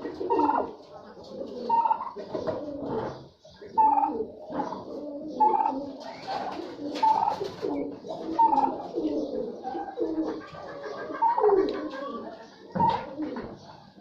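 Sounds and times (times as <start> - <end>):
flock of birds calling: 0.0 - 14.0.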